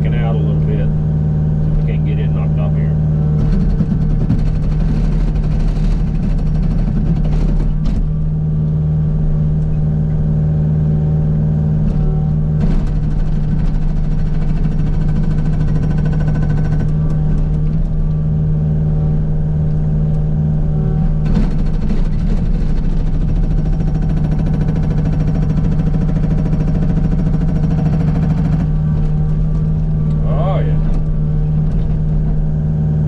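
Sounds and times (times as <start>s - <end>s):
diesel engine running: 0.0s - 33.0s
hydraulic hammer rattling on rock: 3.4s - 8.1s, 12.6s - 17.8s, 21.2s - 30.0s.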